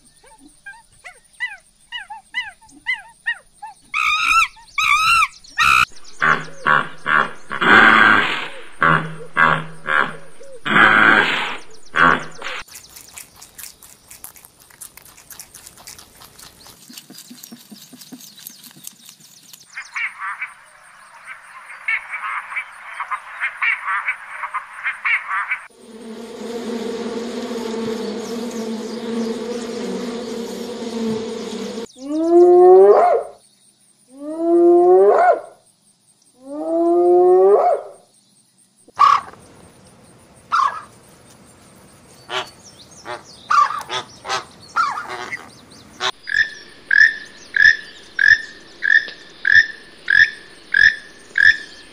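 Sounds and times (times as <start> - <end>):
loud rising animal calls: 4.0 - 12.6, 25.6 - 32.9
flamingos honking: 5.6 - 12.7, 25.2 - 31.9
bumblebee buzzing: 5.8 - 12.7, 25.7 - 31.9.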